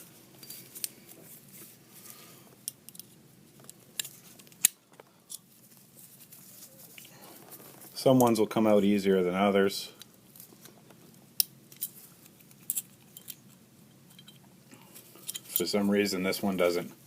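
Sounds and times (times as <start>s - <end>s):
metallic clicks of pistol parts: 2.6s - 5.5s.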